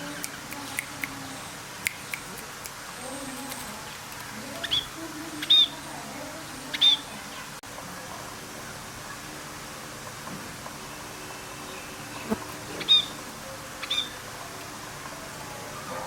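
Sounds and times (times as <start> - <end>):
sharp clicks: 1.8 - 2.8
bird calling: 3.1 - 7.6, 11.7 - 14.2.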